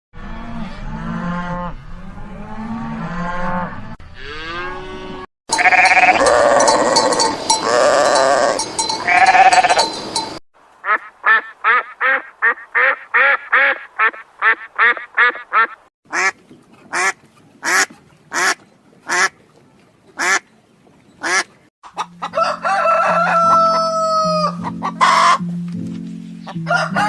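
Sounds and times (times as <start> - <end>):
livestock bleating: 5.5 - 9.9
clanking bells: 5.5 - 10.4
duck quacking: 10.8 - 19.4, 20.2 - 20.4, 21.2 - 22.3.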